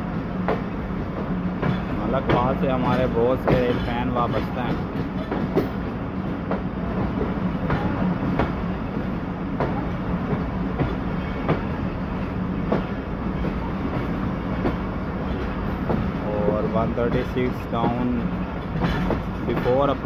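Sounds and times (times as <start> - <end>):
train wheels rumbling on rail: 0.0 - 20.0
wheels clacking over rail joints: 1.6 - 8.6, 12.6 - 20.0.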